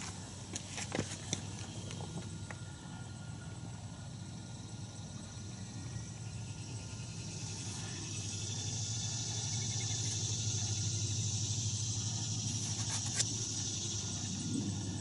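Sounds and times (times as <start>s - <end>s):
motor humming: 4.0s - 15.0s
high hiss: 6.9s - 15.0s.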